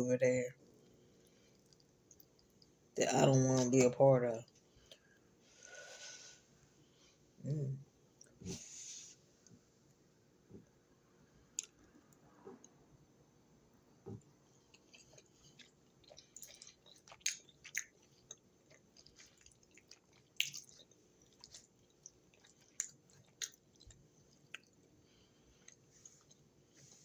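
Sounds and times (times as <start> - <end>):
person chewing food: 0.7 - 2.8, 14.5 - 27.0.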